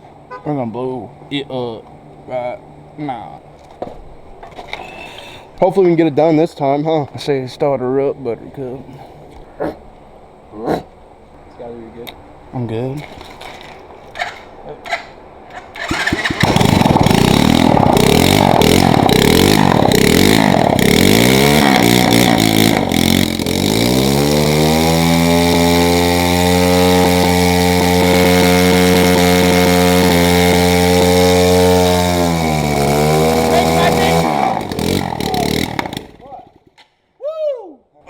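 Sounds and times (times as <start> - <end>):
small motorbike engine revving: 15.7 - 36.8
rear tyre spinning: 15.8 - 36.8.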